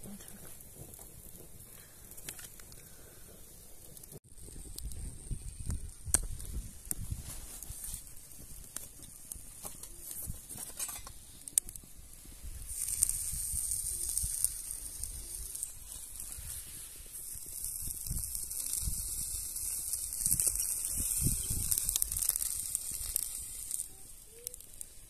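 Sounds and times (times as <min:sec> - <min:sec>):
food sizzling in oil: 0:09.2 - 0:25.0.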